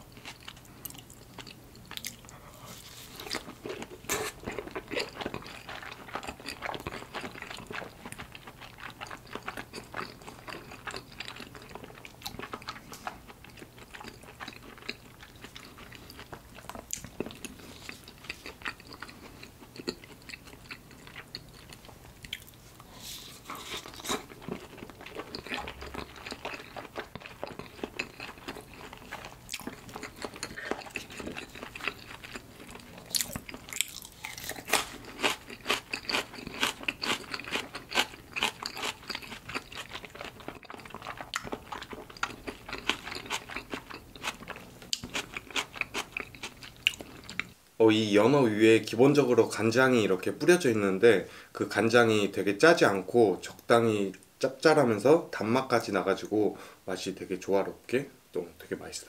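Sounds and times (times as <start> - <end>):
close chewing with wet mouth clicks: 0.1 - 2.4, 3.2 - 22.6, 23.6 - 47.6.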